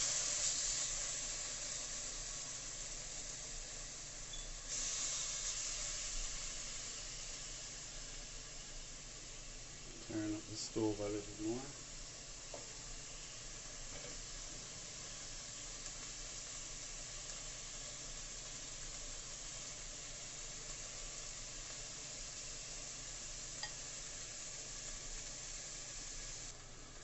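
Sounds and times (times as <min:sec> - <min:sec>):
meat sizzling in a pan: 0:00.0 - 0:27.0.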